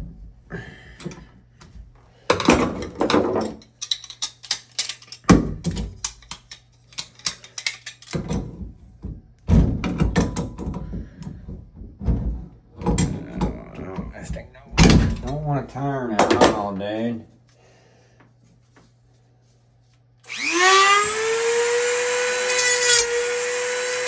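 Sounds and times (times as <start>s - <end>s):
tool clicking and scraping metal: 2.3s - 8.4s.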